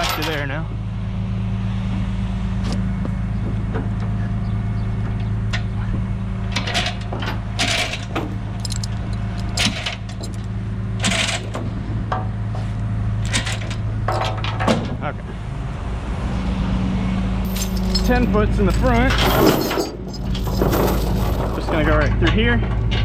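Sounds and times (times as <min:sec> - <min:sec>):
engine idling: 0:00.0 - 0:15.8
chain clinking and rattling: 0:06.5 - 0:11.5, 0:17.4 - 0:23.0.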